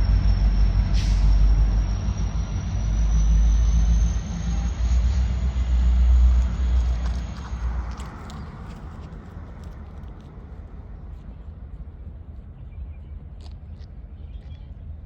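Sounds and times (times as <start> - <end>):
high whine rising in pitch: 0.0 - 7.8
heavy vehicle rumble: 0.0 - 15.0.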